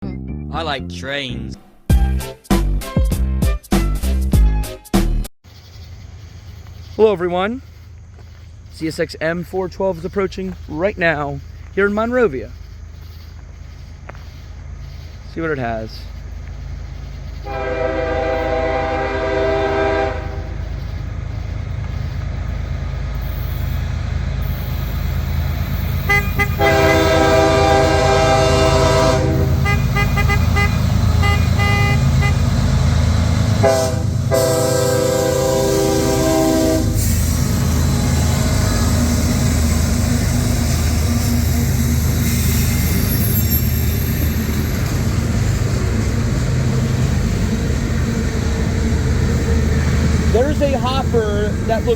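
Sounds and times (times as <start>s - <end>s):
diesel freight train rumbling: 5.5s - 51.9s
locomotive air horn blasts: 17.4s - 20.6s, 26.0s - 32.6s, 33.5s - 43.5s.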